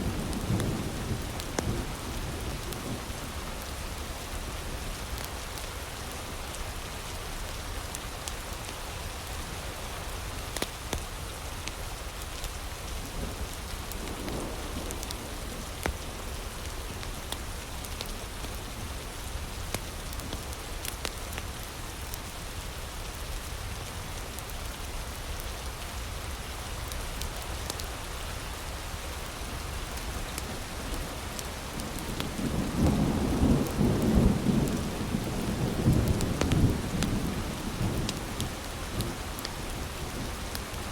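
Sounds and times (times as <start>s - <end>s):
heavy rain falling: 0.0s - 40.9s
thunder rumbling: 30.5s - 40.8s.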